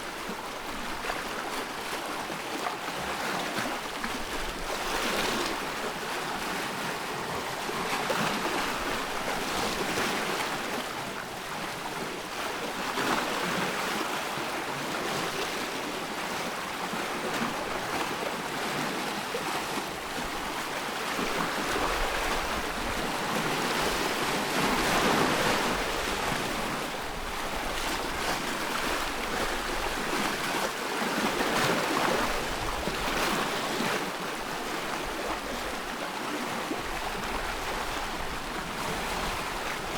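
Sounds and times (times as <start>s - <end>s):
ocean waves breaking: 14.9s - 39.9s.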